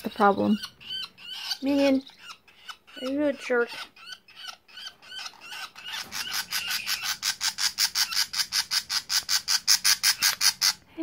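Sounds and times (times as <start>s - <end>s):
bird chicks distress calls: 0.0s - 10.9s.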